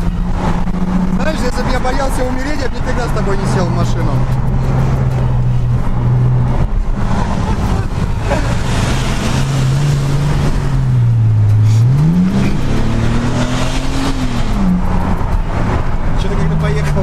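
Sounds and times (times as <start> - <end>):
car engine accelerating: 0.0 - 17.0
road and tyre noise: 0.0 - 17.0.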